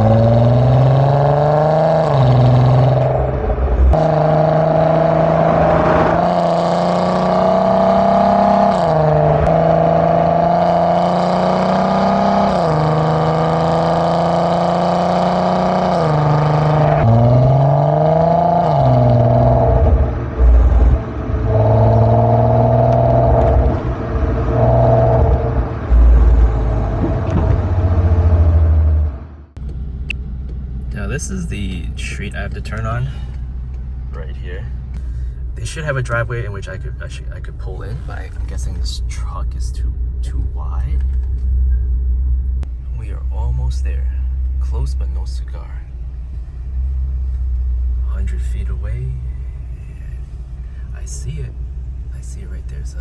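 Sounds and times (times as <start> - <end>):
car engine accelerating through gears: 0.0 - 36.8.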